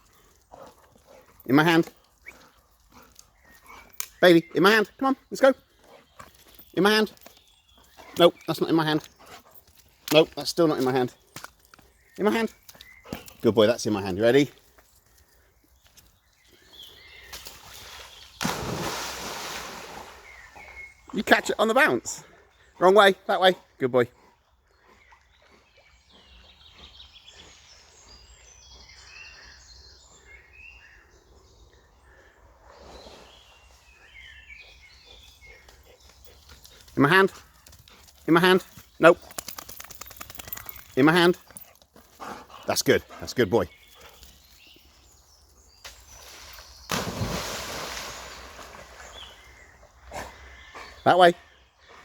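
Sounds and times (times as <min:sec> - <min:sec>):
small birds singing: 0:00.0 - 0:52.0
dog splashing into water: 0:18.4 - 0:20.4, 0:46.9 - 0:49.4.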